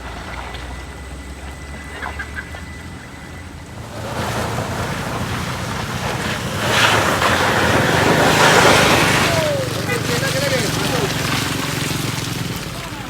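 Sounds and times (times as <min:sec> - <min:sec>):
vehicle engine running: 0:00.0 - 0:13.0
loud rushing noise: 0:03.8 - 0:13.0.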